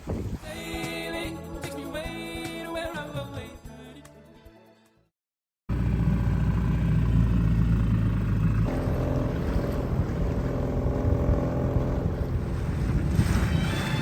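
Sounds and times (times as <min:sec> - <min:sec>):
outboard motor droning: 0:05.7 - 0:14.0.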